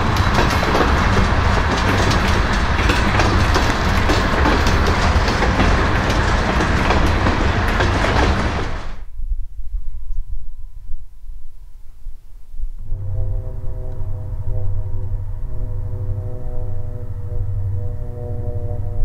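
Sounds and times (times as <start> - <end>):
clicking over rail joints: 0.0 - 9.0
train wheels on rail: 0.0 - 9.1.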